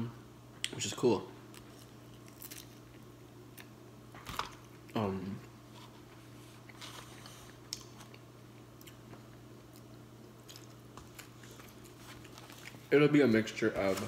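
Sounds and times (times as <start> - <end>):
faint low hum: 0.0 - 14.0
chewing and biting food: 6.6 - 12.9.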